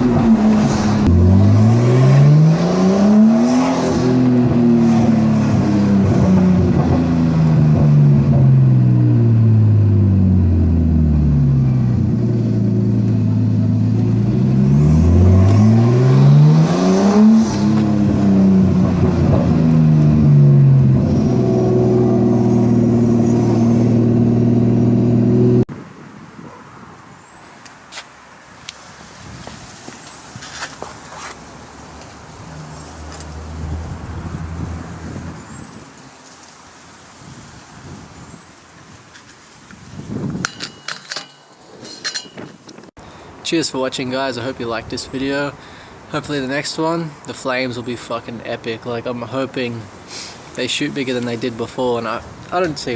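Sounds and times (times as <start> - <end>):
car engine revving: 0.0 - 25.7.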